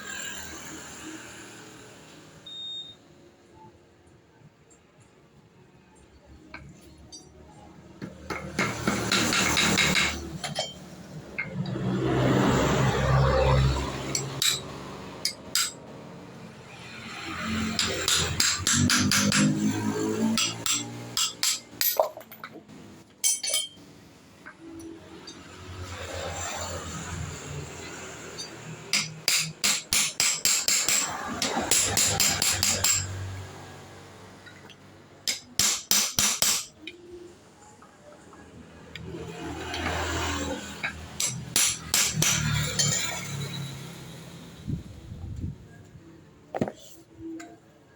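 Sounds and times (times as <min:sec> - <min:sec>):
metal tools clinking: 0:06.9 - 0:07.6, 0:20.4 - 0:23.9
hammer striking metal: 0:08.0 - 0:11.6, 0:14.0 - 0:15.8, 0:17.1 - 0:22.6, 0:28.3 - 0:33.4, 0:35.2 - 0:36.9, 0:40.8 - 0:43.6.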